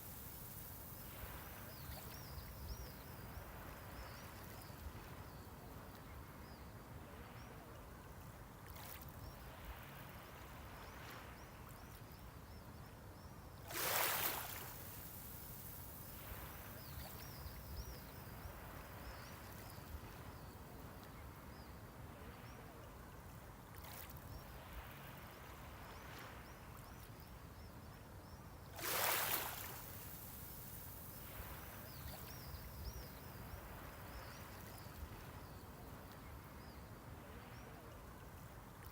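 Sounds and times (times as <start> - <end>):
small waves washing on shore: 0.0 - 5.4, 13.6 - 21.0, 28.7 - 38.9.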